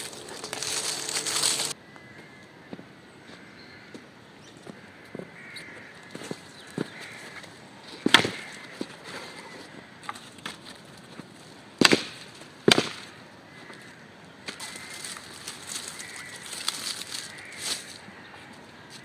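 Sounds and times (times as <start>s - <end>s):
axe chopping wood: 8.0s - 8.5s, 11.8s - 13.1s.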